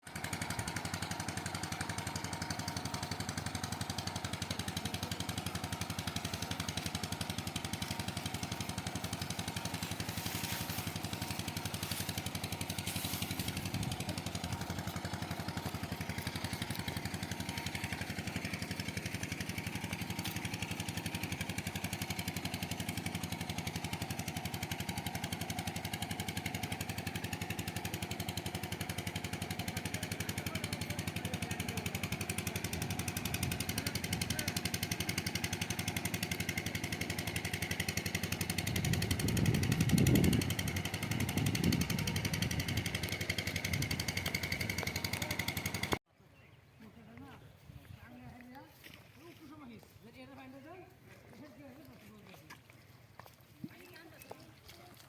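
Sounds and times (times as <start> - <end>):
small motor running: 0.0 - 46.0.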